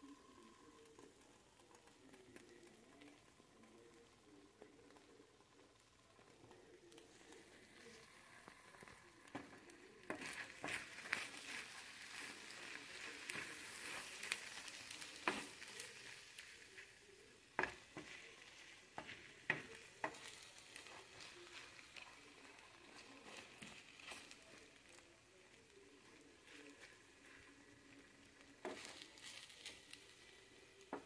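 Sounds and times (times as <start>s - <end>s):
food sizzling in a frying pan: 0.0s - 31.0s
wooden spatula scraping pan: 8.1s - 16.2s, 17.6s - 24.4s, 28.4s - 30.2s.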